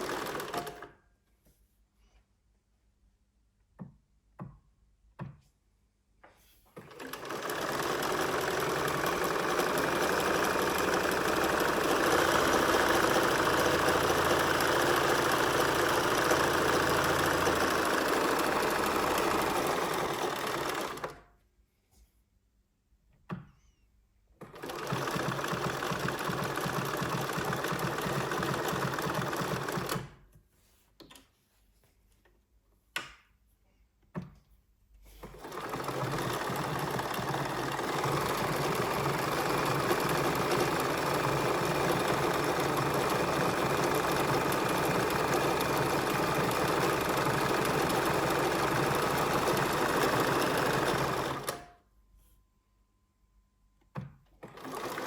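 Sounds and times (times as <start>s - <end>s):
sewing machine running: 0.0s - 0.9s, 6.8s - 21.2s, 24.4s - 30.1s, 35.2s - 51.8s, 54.4s - 55.0s
sewing machine clicks: 0.0s - 1.0s, 6.8s - 21.2s, 24.4s - 30.2s, 35.2s - 51.8s, 53.9s - 55.0s.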